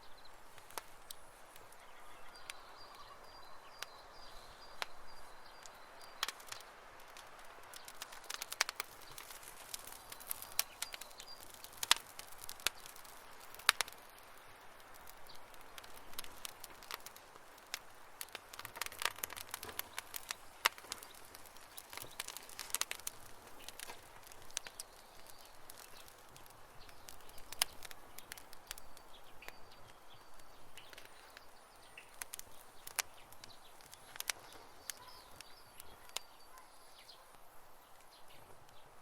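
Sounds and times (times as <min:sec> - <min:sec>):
campfire crackling and popping: 0:00.0 - 0:39.0
soft steady hiss: 0:00.0 - 0:39.0
faint bird chirps: 0:01.0 - 0:06.8, 0:23.6 - 0:39.0.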